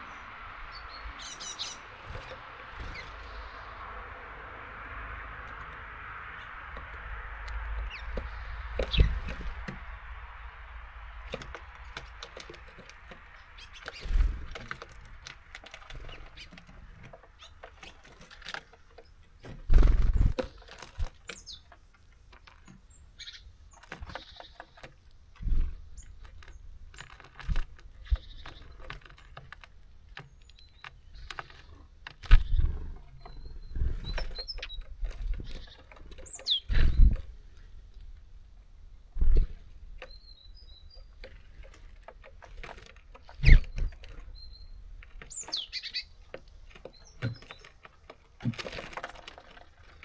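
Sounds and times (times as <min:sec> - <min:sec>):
birds pecking and hopping: 0:00.0 - 0:50.0.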